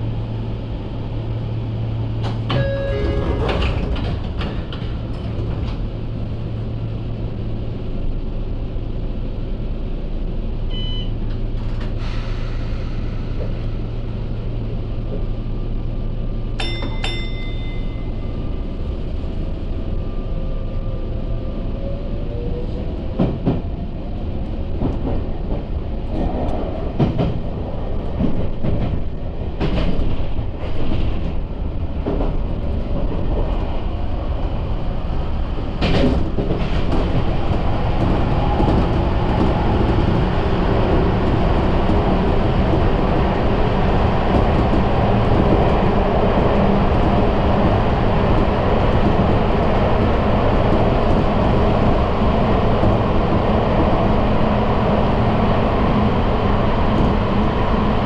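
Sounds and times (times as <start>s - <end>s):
electric train running on rails: 0.0s - 58.0s
train wheel clacks and knocks: 2.2s - 5.9s, 16.6s - 18.0s, 23.1s - 23.8s, 24.7s - 33.7s, 35.7s - 43.4s, 44.2s - 52.0s.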